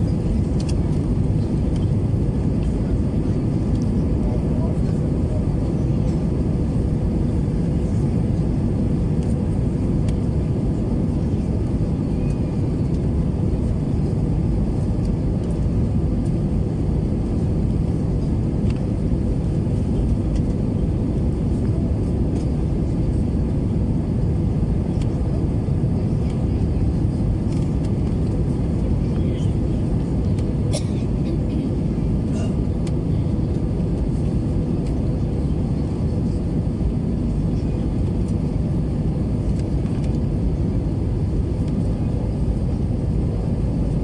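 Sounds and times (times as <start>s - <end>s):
airplane cabin rumble: 0.0s - 44.0s.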